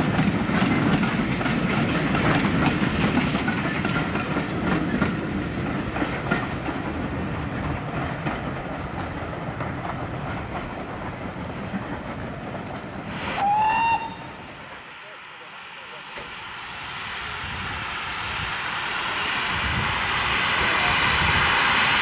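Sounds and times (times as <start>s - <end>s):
train wheels clicking over rail joints: 0.0s - 13.1s
steam hiss: 13.0s - 22.0s
steam whistle: 13.3s - 14.4s.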